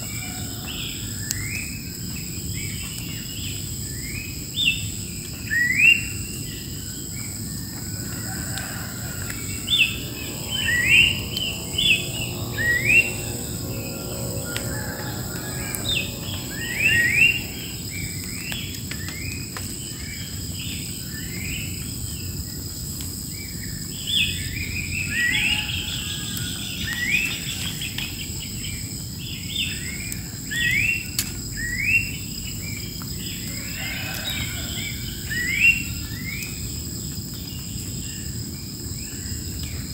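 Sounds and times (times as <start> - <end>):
birds chirping: 0.0 - 22.2
high-pitched insect drone: 5.9 - 18.6.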